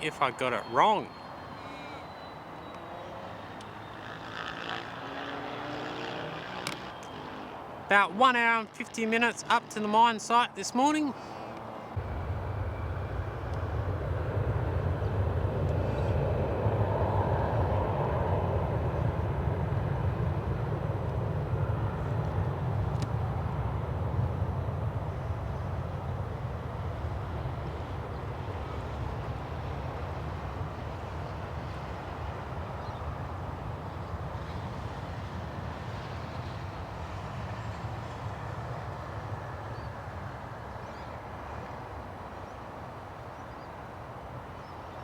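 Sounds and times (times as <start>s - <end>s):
jet engine rumble: 11.1s - 43.1s.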